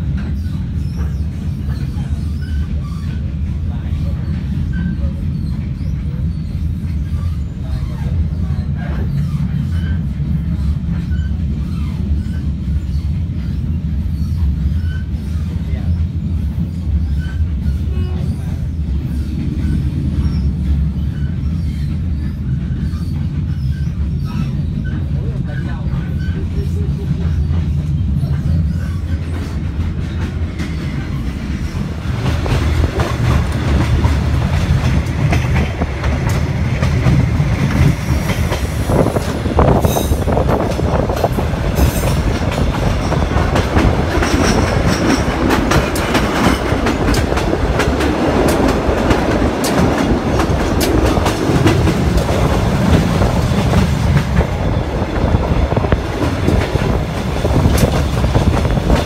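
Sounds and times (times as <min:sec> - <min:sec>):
train rumble: 0:00.0 - 0:59.0
wheel squeals: 0:00.2 - 0:03.3, 0:04.1 - 0:15.4, 0:16.6 - 0:25.1, 0:27.3 - 0:31.2
wheels clacking over rail joints: 0:18.8 - 0:59.0.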